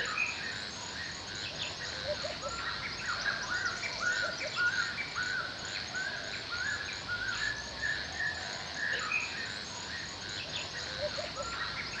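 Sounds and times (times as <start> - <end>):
birds singing: 0.0 - 12.0.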